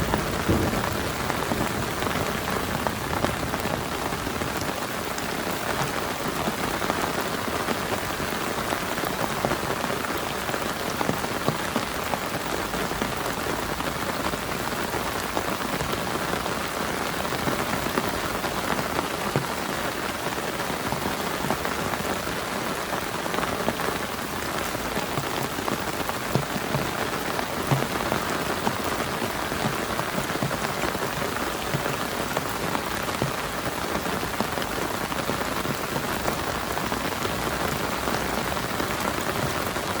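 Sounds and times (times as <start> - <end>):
single raindrop hits: 0.0 - 3.8
heavy rain on a tarp: 0.0 - 40.0.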